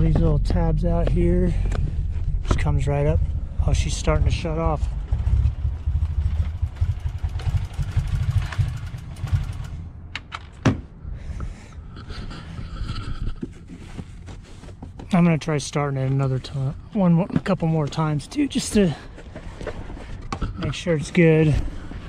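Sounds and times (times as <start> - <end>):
car engine stumbling and dying: 0.0 - 10.0.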